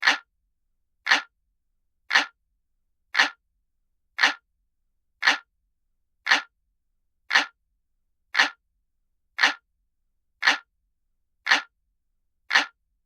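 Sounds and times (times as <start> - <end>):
clock ticking: 0.0 - 0.3, 1.1 - 1.3, 2.1 - 2.4, 3.2 - 3.4, 4.2 - 4.4, 5.2 - 5.5, 6.3 - 6.5, 7.3 - 7.6, 8.4 - 8.6, 9.4 - 9.6, 10.4 - 10.7, 11.5 - 11.7, 12.5 - 12.8.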